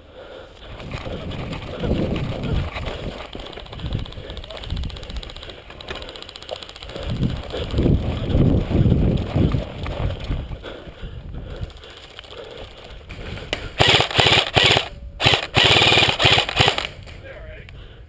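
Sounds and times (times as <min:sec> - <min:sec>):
airsoft rifle bursts: 0:13.8 - 0:17.0.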